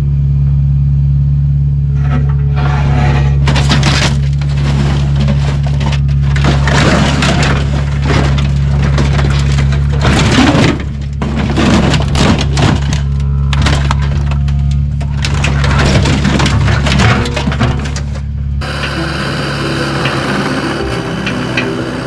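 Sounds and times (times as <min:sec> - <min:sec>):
material cracking and crunching: 0:03.5 - 0:18.1
heavy machinery engine running: 0:18.4 - 0:22.0.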